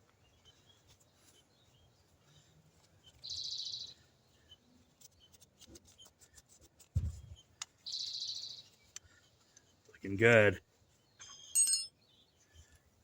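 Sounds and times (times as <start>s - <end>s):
bird chirping trill: 3.0s - 5.4s, 7.3s - 8.9s, 11.0s - 12.4s.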